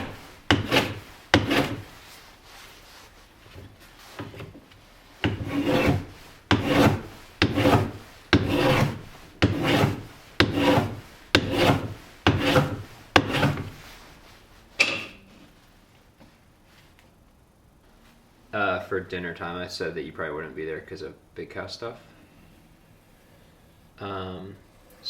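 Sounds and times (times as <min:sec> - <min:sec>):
hand tool strokes on wood: 0:00.0 - 0:04.5, 0:05.1 - 0:14.3.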